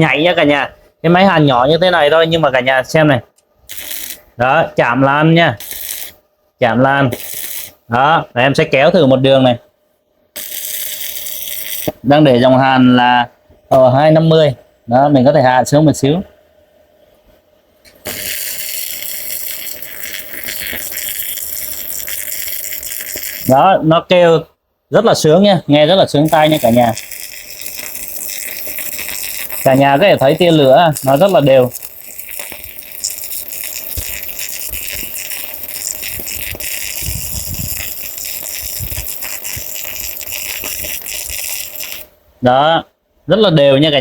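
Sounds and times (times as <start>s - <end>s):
welding arc crackle and hiss: 3.6s - 4.4s, 5.5s - 6.2s, 7.0s - 7.9s, 10.4s - 12.4s, 17.9s - 23.8s, 26.2s - 42.2s.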